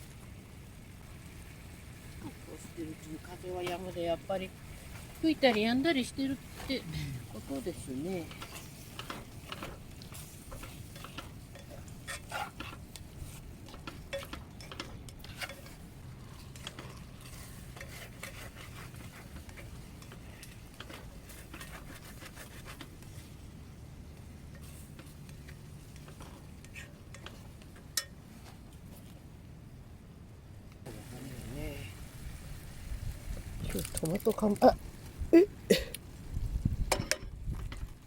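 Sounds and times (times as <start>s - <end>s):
utensil scraping metal pot: 4.7s - 23.4s, 24.4s - 28.2s.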